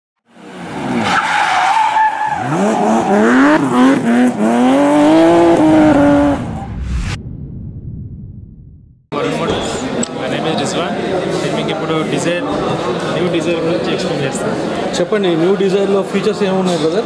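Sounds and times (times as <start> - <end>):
sports car engine revving: 2.5 - 6.7.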